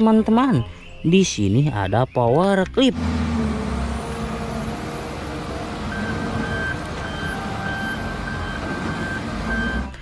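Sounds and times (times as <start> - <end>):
diesel engine running: 2.8 - 10.0
reversing alarm beeping: 5.8 - 10.0.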